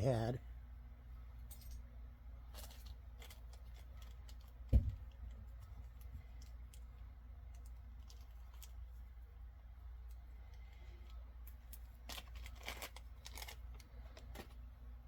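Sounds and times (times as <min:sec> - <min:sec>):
pins and packaging clicking: 0:11.6 - 0:14.5.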